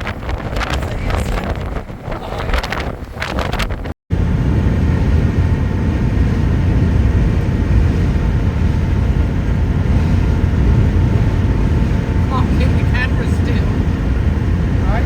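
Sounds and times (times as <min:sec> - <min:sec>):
motorhome driving rumble: 0:00.0 - 0:15.0
wind buffeting microphone: 0:00.0 - 0:15.0.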